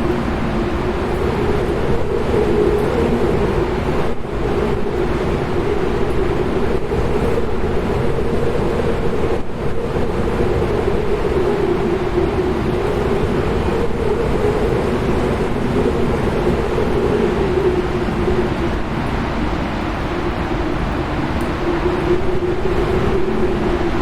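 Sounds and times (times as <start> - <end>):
wind howling: 0.0 - 24.0.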